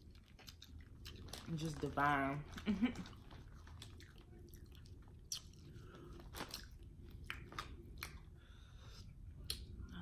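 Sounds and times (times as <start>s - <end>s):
person chewing: 0.0s - 1.5s, 2.5s - 9.9s
wet mouth clicks: 5.3s - 5.6s.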